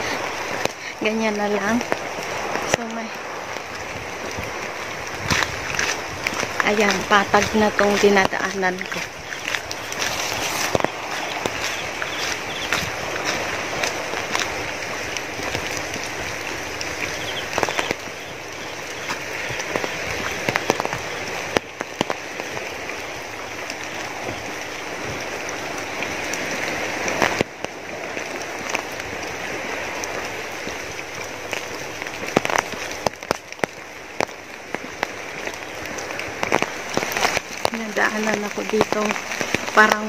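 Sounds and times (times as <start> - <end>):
rain hissing: 0.0 - 40.0
raindrops ticking on an umbrella: 0.0 - 40.0.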